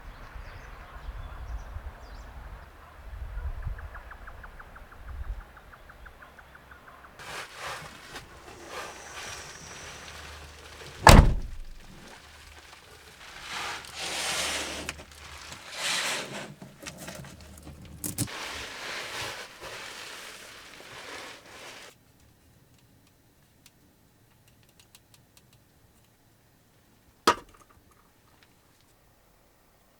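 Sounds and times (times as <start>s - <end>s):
rustling and handling noises: 7.2s - 22.4s
heavy thunk: 11.0s - 12.0s.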